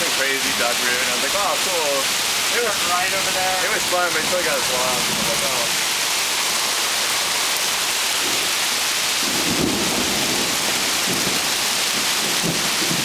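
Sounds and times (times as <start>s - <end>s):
torrential rain: 0.0s - 13.0s
thunder rumble: 1.2s - 5.9s, 9.2s - 13.0s.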